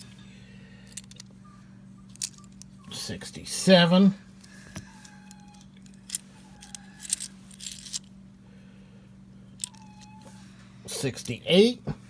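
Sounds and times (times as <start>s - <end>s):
low steady hum: 0.0s - 12.0s
coins clinking: 2.1s - 2.7s, 5.2s - 8.1s.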